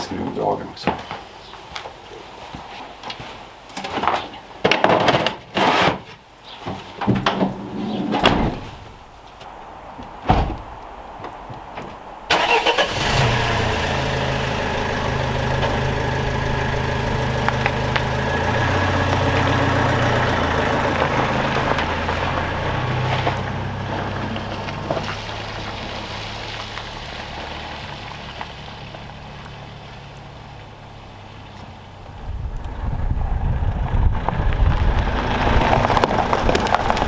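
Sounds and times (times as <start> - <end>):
car engine idling: 12.3 - 37.0.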